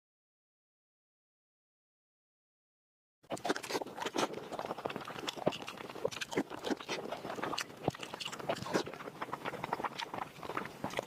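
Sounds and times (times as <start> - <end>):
person chewing food: 3.3 - 11.0.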